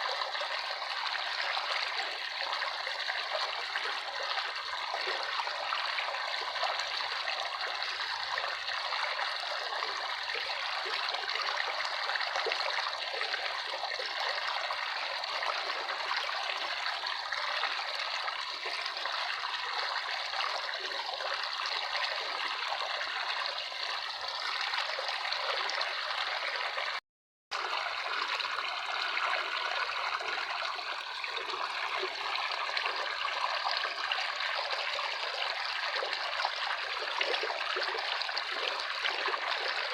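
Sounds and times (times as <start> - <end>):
running water trickling: 27.6 - 39.9.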